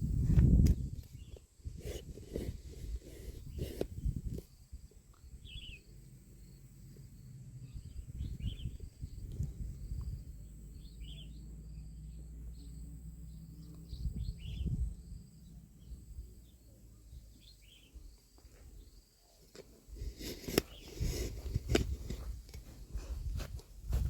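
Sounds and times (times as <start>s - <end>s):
small birds chirping: 0.7s - 23.0s
close rustling: 1.1s - 4.5s, 19.4s - 24.0s.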